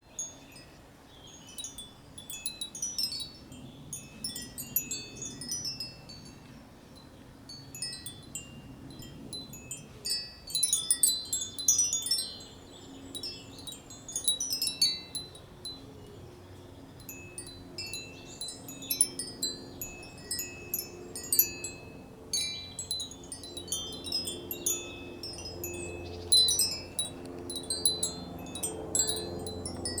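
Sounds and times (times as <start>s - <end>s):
wind chime tubes ringing: 7.7s - 15.9s, 17.0s - 30.0s.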